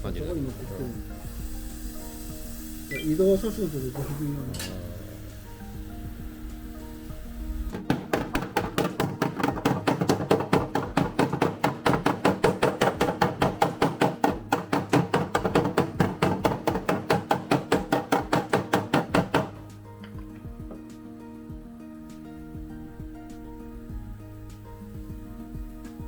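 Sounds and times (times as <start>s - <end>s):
hammer tapping on metal panel: 7.7s - 20.9s.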